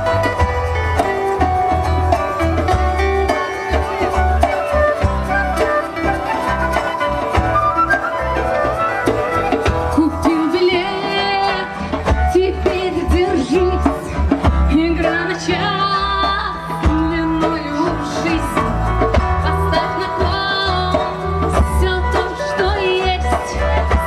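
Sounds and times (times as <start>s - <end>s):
wavering lead melody: 0.0s - 11.8s
bass guitar: 0.0s - 24.0s
drums: 0.0s - 24.0s
guitar: 0.0s - 24.0s.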